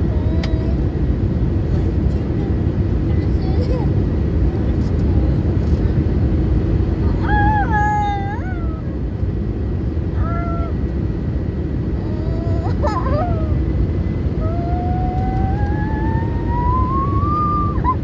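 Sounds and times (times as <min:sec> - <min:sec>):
airplane cabin rumble: 0:00.0 - 0:18.0
steady rising whine: 0:12.8 - 0:18.0.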